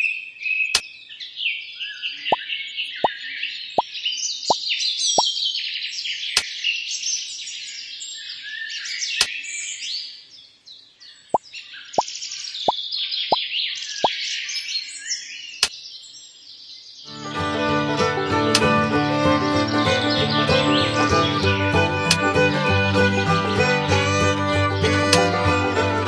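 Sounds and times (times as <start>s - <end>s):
birds chirping and singing: 0.0s - 17.3s, 18.8s - 26.0s
sharp clicks: 22.0s - 22.5s.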